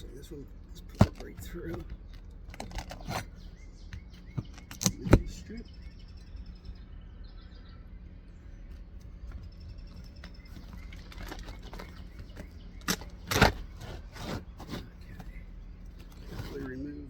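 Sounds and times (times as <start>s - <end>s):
scraping: 0.0s - 5.6s, 8.6s - 17.0s
roof shingle cracking and snapping: 0.8s - 5.3s, 8.9s - 15.3s.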